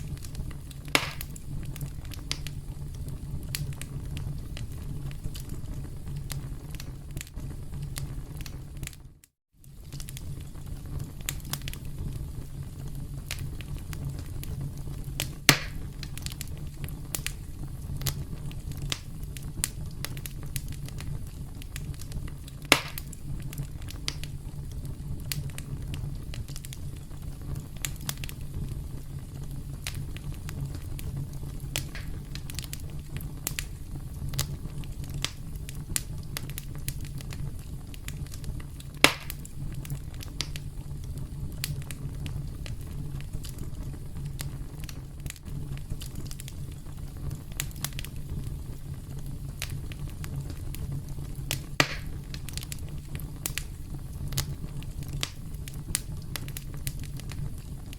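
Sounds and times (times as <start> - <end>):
campfire crackling: 0.0 - 57.9
loud sharp pops: 0.9 - 1.4, 15.2 - 15.9, 22.6 - 23.2, 31.8 - 32.2, 39.0 - 39.5, 51.6 - 52.6.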